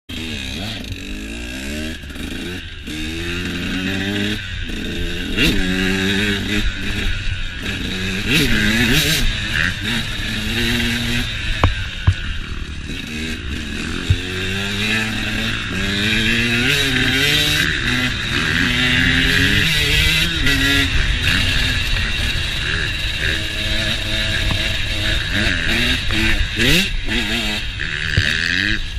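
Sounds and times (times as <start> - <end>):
dirt bike engine revving: 0.1 - 28.9.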